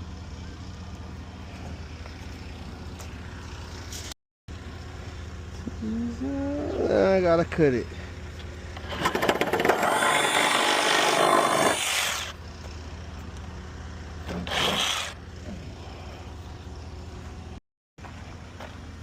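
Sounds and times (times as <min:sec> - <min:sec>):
power saw cutting wood: 0:08.8 - 0:12.4, 0:14.3 - 0:15.2.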